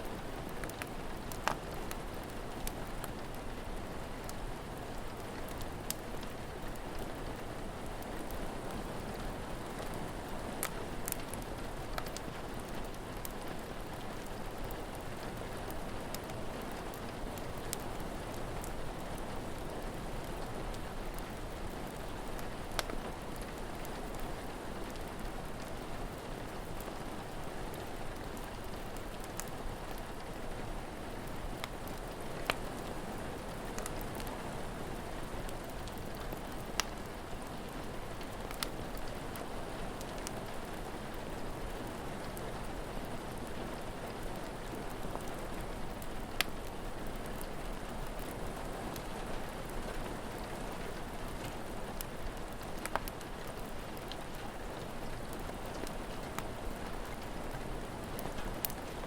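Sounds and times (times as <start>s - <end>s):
steady rain: 0.0s - 59.0s
wood fire crackling and popping: 0.0s - 59.0s.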